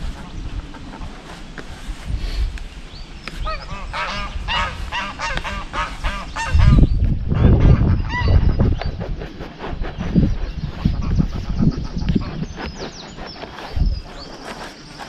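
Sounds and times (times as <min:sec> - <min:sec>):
geese honking: 0:03.4 - 0:08.4.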